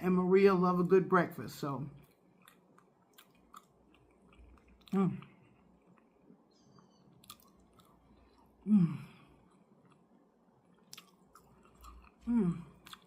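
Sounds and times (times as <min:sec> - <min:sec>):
person chewing food: 0:02.0 - 0:13.0
person humming mmm: 0:08.6 - 0:09.3, 0:12.2 - 0:13.0.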